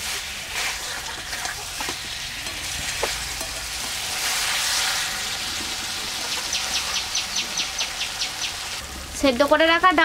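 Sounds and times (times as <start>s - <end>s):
metal spatula stirring: 0.0s - 6.2s
food sizzling in a wok: 0.0s - 10.0s.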